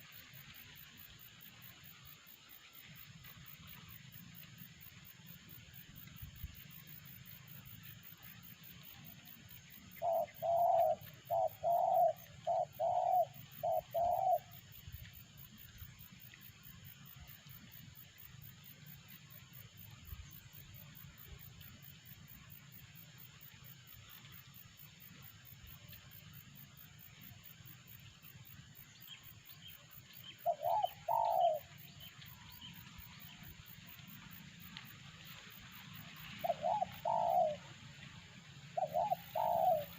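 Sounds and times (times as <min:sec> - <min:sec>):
dove cooing: 0:09.9 - 0:14.6, 0:30.3 - 0:32.0, 0:36.4 - 0:37.8, 0:38.7 - 0:39.9.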